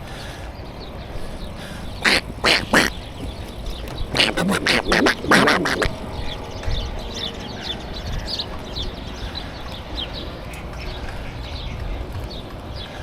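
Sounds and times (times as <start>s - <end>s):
bird chirping: 0.0s - 13.0s
wind rumble: 0.0s - 13.0s
bicycle tyres rolling: 7.7s - 13.0s.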